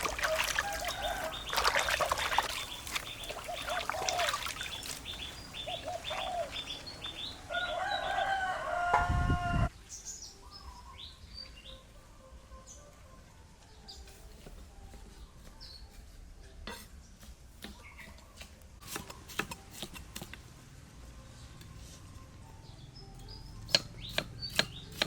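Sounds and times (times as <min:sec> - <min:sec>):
chickens clucking: 0:00.0 - 0:07.4.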